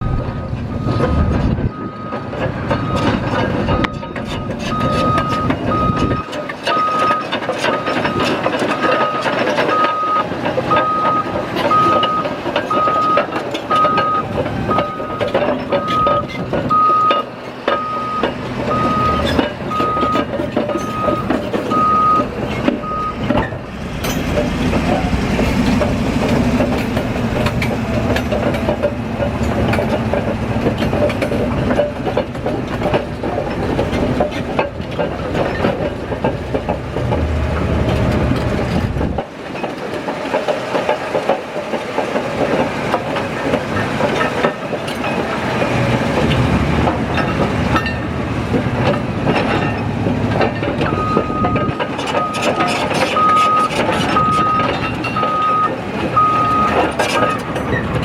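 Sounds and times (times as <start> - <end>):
reversing alarm beeping: 0.0 - 8.3, 8.9 - 23.6, 50.9 - 52.6, 53.2 - 57.7
bulldozer diesel engine running: 0.0 - 58.0
steel tracks clanking: 0.0 - 58.0.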